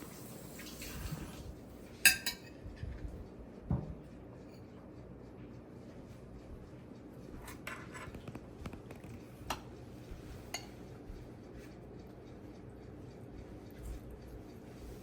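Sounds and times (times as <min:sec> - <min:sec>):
utensil clinking against dish: 0:02.1 - 0:02.6, 0:10.5 - 0:10.8.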